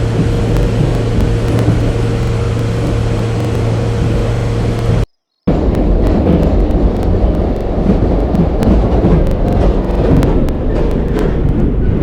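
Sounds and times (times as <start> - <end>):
low hum: 0.0 - 12.0
train rumbling: 0.0 - 12.0.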